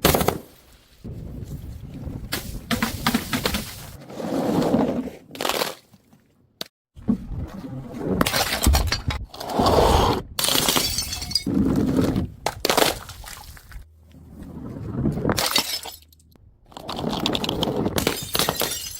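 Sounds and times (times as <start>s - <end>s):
glass bottles shattering: 10.4s - 11.5s, 15.4s - 16.2s, 18.0s - 18.9s.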